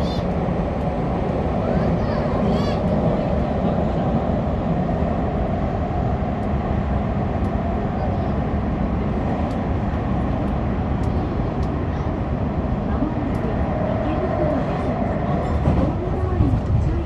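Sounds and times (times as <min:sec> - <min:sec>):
subway train rumbling in tunnel: 0:00.0 - 0:17.0.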